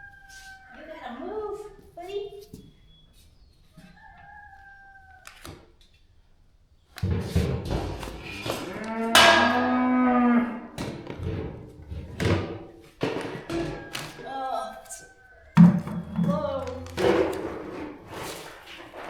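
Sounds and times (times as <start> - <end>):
cow mooing: 8.4 - 10.8
knocks: 9.2 - 9.8, 15.6 - 18.0.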